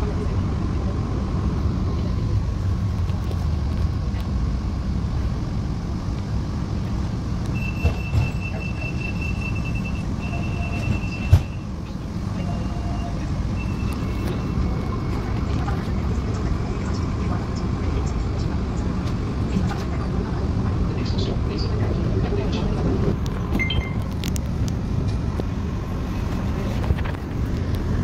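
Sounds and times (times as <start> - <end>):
vehicle low rumble: 0.0 - 28.0
high steady tone: 23.5 - 24.2.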